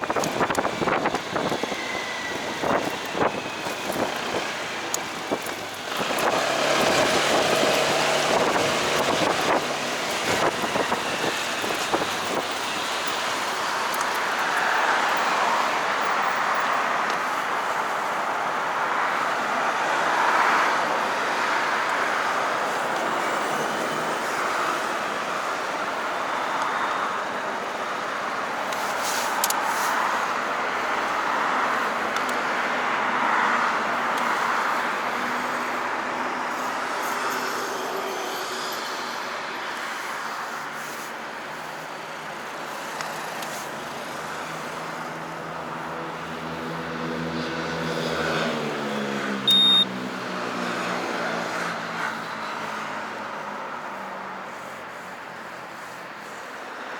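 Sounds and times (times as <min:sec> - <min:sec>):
wind and road noise: 0:00.0 - 0:56.9
short high-pitched beep: 0:49.5 - 0:49.9.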